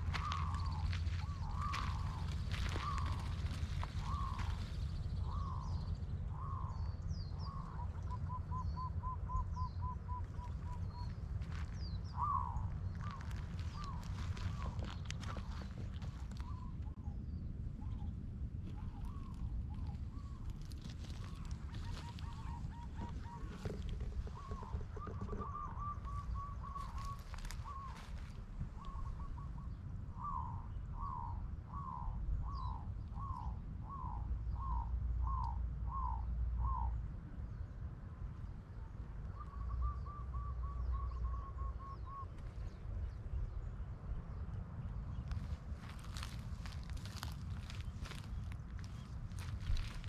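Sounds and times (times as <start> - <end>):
bird falling calls: 0.0 - 5.8, 12.1 - 16.9, 18.8 - 32.0
birds chattering: 0.0 - 36.2, 45.1 - 50.0
steady low rumble: 0.0 - 50.0.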